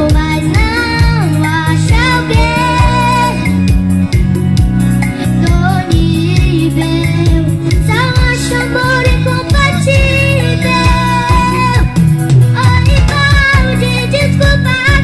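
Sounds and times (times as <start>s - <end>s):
band music: 0.0s - 15.0s
steady drum beat: 11.3s - 13.9s.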